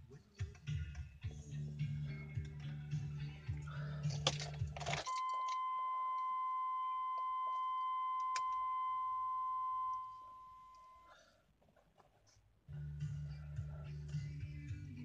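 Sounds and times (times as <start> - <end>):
steady electronic beep: 5.1 - 11.1.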